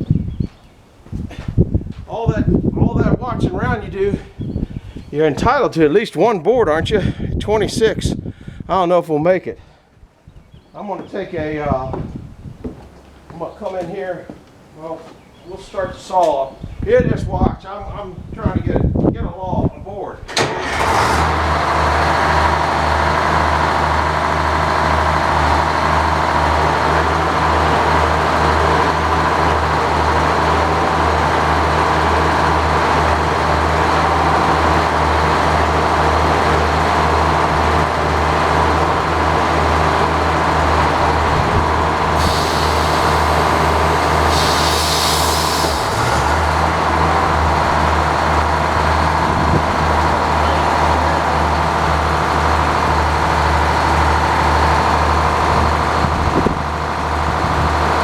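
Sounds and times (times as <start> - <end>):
engine pulsing drone: 20.7 - 58.0
hiss: 42.2 - 47.0.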